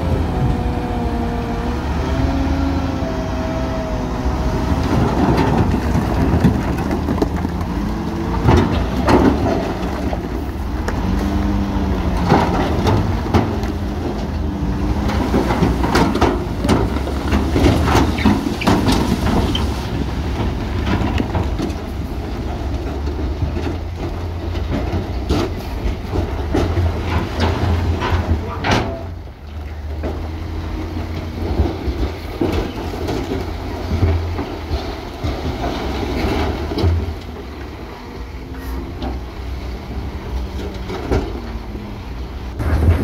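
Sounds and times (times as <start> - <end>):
diesel machinery rumbling: 0.0 - 43.0
metallic clanks and knocks: 20.3 - 29.2.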